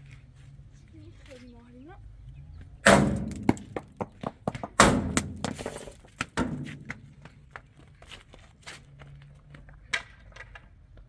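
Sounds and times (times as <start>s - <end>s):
rattling clatter of knocks: 2.9s - 7.4s.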